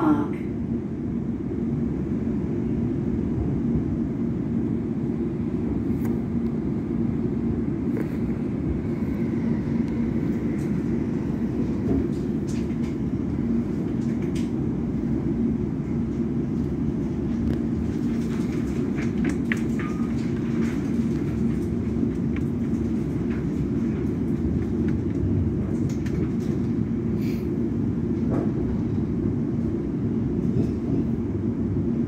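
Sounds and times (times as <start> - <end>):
faint hum: 0.0 - 18.2
train rumble inside carriage: 0.0 - 32.0.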